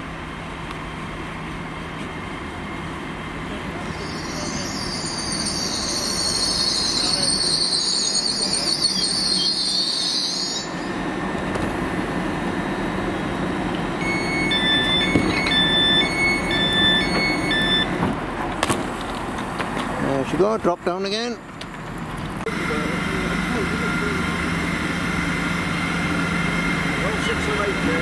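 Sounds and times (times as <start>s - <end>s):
train slowing: 0.0s - 20.5s, 21.2s - 28.0s
high-pitched brake squeal: 3.8s - 11.4s, 14.0s - 17.9s
short electronic beeps: 3.9s - 11.2s, 14.0s - 18.0s.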